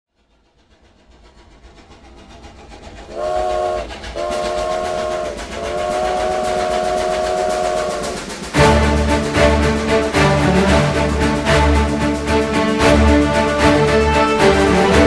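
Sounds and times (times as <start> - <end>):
train chugging: 0.1 - 15.0
train whistle blasts: 3.1 - 9.5.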